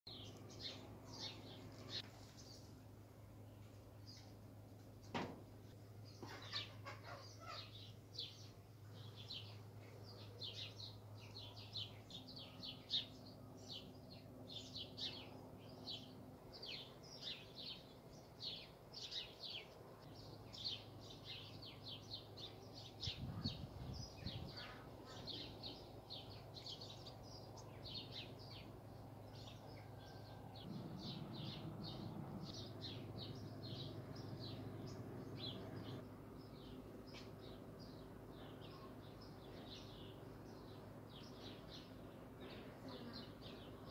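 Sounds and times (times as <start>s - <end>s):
small birds chirping: 0.1s - 4.7s, 5.9s - 43.9s
faint low hum: 0.1s - 43.9s
low rumble: 29.6s - 37.0s.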